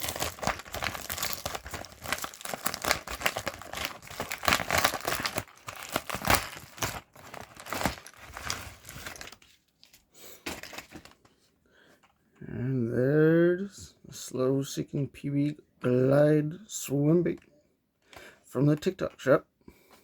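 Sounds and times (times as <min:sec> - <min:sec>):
packaging crinkling: 0:00.0 - 0:11.3.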